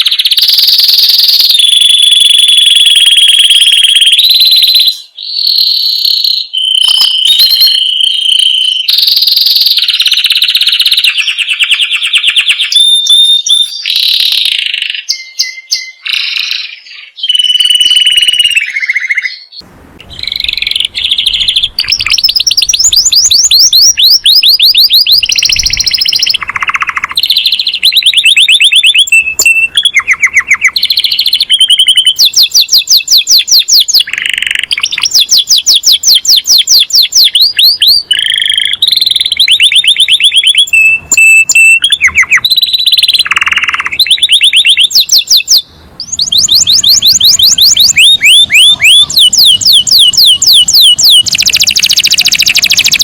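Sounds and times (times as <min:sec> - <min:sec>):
canary singing trills: 0:00.0 - 0:53.0.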